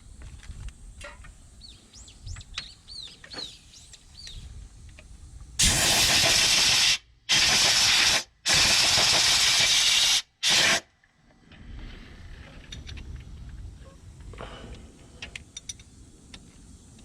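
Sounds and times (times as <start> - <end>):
pressurized gas hissing from nozzle: 5.6 - 10.9.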